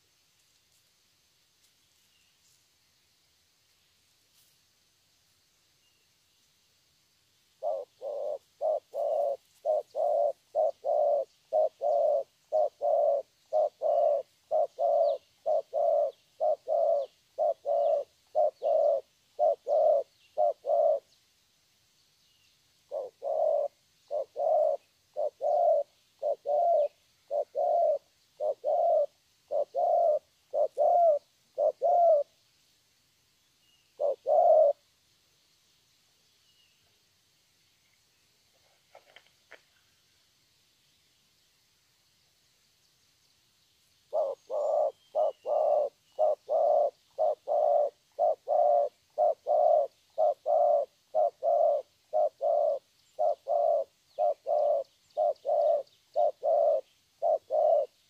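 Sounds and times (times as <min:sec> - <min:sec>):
dove cooing: 0:07.6 - 0:21.2, 0:22.9 - 0:32.4, 0:34.0 - 0:34.8, 0:44.1 - 0:58.0.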